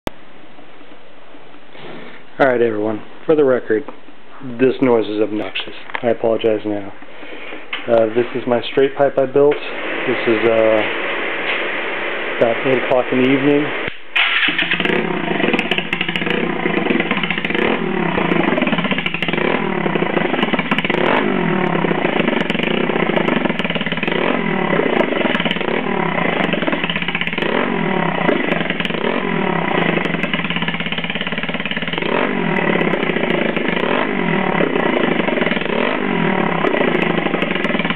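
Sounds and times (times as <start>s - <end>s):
scooter engine revving: 9.7s - 37.9s.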